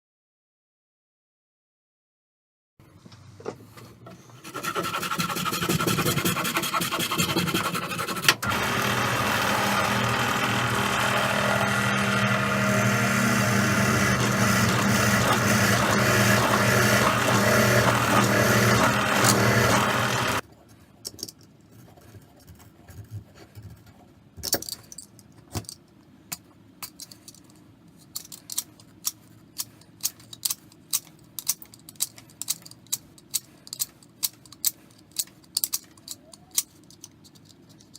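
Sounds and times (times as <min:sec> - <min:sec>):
power tool grinding: 0:04.4 - 0:20.4.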